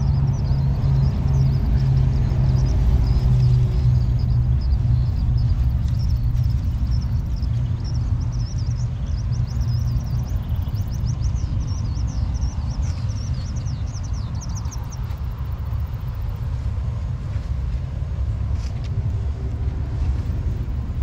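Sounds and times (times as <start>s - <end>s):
small bird warbling chirps: 0.0s - 15.4s
steady low rumble: 0.0s - 21.0s.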